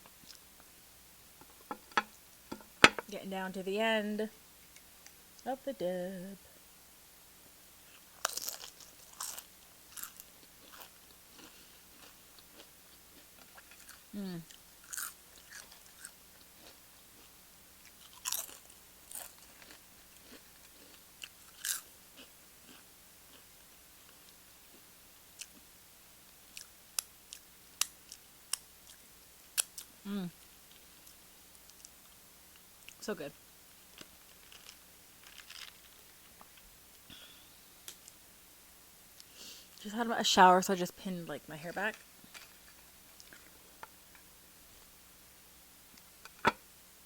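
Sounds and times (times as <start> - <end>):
chewing crunchy chip: 8.0 - 25.6, 33.9 - 36.6
biting crunchy tortilla chip: 8.2 - 23.5, 34.0 - 36.1.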